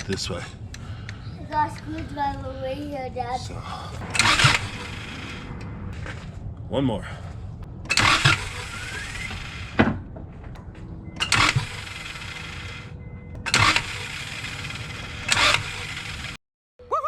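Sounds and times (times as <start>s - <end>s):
car starter cranking engine: 3.9s - 6.4s, 7.7s - 16.4s.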